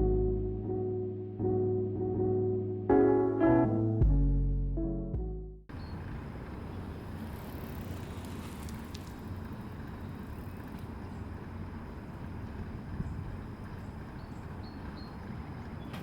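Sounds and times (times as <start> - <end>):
string music: 0.0 - 5.6.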